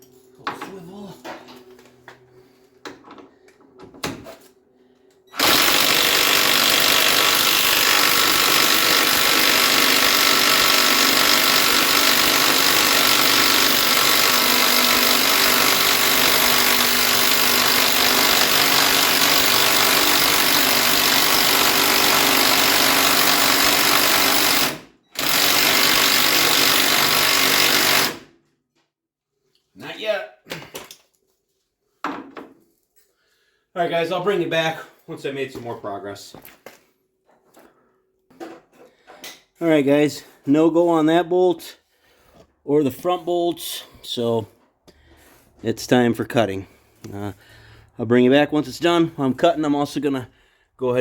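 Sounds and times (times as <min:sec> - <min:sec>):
impact wrench hammering: 0:05.4 - 0:28.2.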